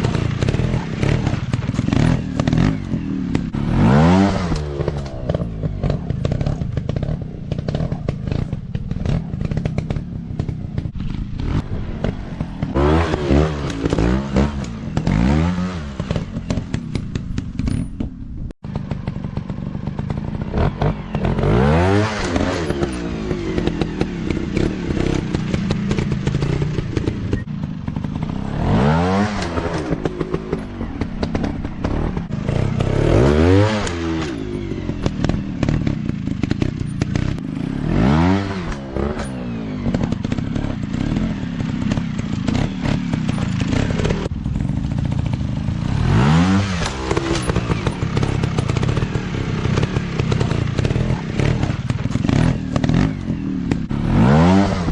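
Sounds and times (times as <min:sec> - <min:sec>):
dirt bike engines revving: 0:00.0 - 0:54.9
sharp clicks and knocks: 0:04.4 - 0:15.3.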